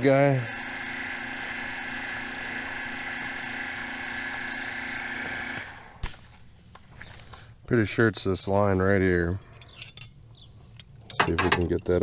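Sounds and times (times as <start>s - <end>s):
machine motor running: 0.0s - 6.0s.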